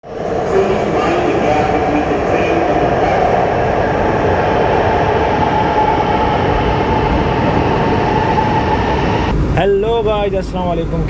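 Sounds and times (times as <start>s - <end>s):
metro train rolling on rails: 0.0s - 11.0s
train high whine: 0.0s - 11.0s.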